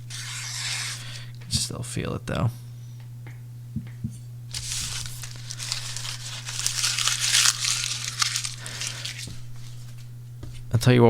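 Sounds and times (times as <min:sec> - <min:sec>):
steady low hum: 0:00.0 - 0:11.0
knife scraping sharpening stone: 0:00.1 - 0:01.2.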